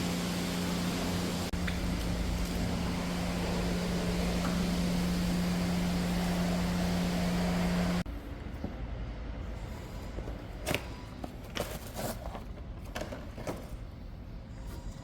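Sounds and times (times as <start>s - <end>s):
machine hum: 0.0s - 8.1s.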